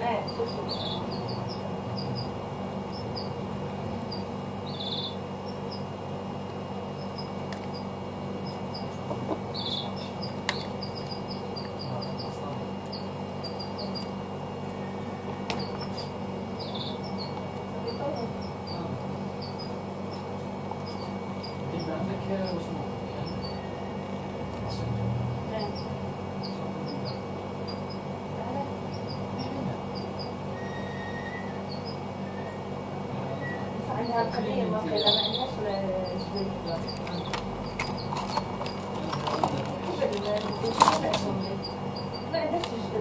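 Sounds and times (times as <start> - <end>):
steady low hum: 0.0 - 43.0
phone parts clicking: 37.0 - 41.3.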